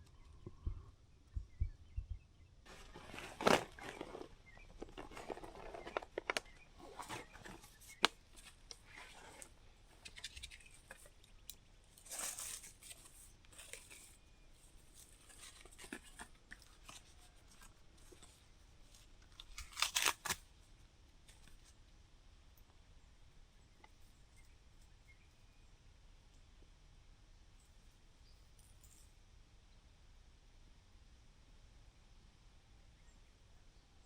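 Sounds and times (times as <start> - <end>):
rustling and crinkling: 2.7 - 20.5.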